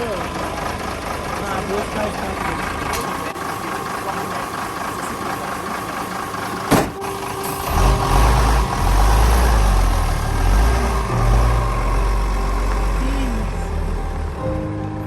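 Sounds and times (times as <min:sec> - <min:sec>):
vehicle engine running: 0:00.0 - 0:14.6
deep bass notes: 0:07.5 - 0:15.0.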